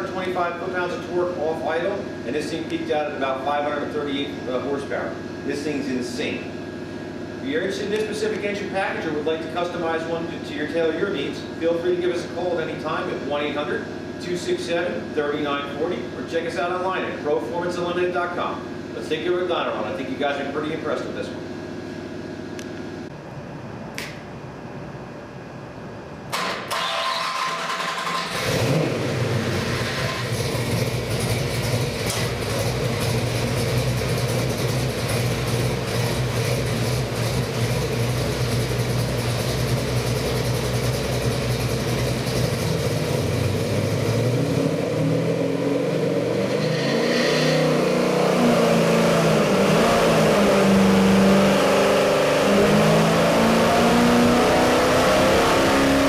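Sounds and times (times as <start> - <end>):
engine idling and revving: 26.3 - 56.0.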